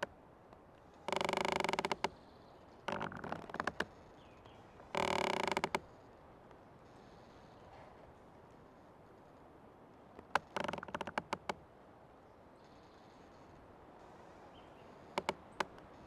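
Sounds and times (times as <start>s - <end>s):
old tree creaking: 0.9s - 6.2s, 10.1s - 11.6s, 13.0s - 16.0s.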